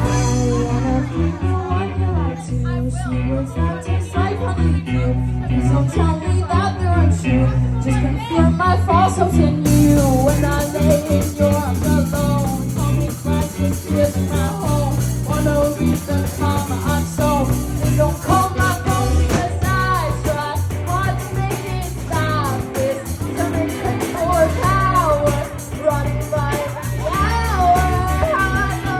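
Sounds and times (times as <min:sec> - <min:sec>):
live band music: 0:00.0 - 0:02.0, 0:09.6 - 0:28.9
person singing: 0:00.0 - 0:28.9.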